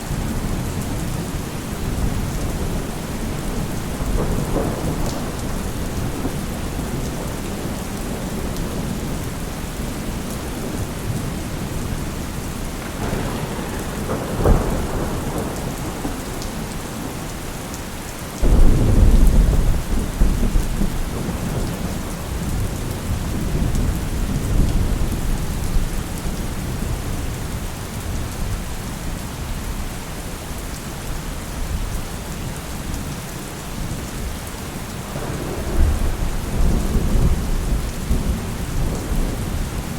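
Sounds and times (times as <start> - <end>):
steady rain: 0.0 - 39.9
thunder crack and rumble: 0.1 - 17.3, 18.4 - 27.3, 34.9 - 39.9.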